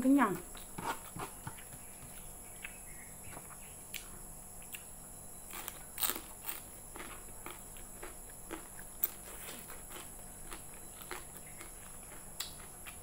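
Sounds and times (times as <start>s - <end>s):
chewing and wet mouth sounds: 1.6s - 4.9s, 5.5s - 13.0s.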